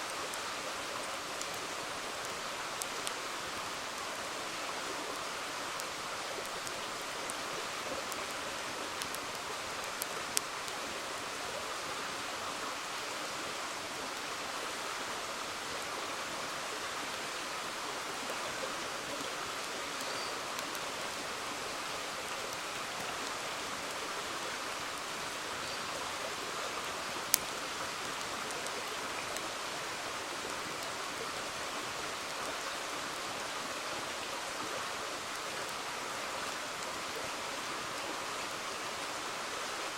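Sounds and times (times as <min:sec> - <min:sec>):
river water flowing: 0:00.0 - 0:39.9
campfire pops: 0:09.0 - 0:10.8, 0:27.2 - 0:28.8.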